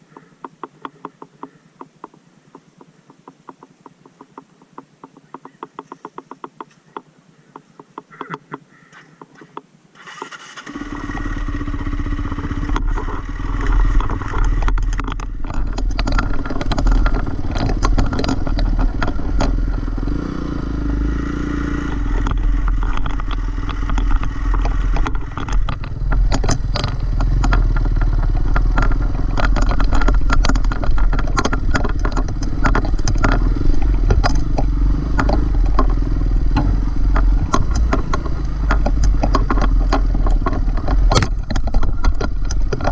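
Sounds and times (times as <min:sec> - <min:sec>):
clattering and scraping on trail: 0:00.0 - 0:42.9
dirt bike engine running: 0:10.6 - 0:42.9.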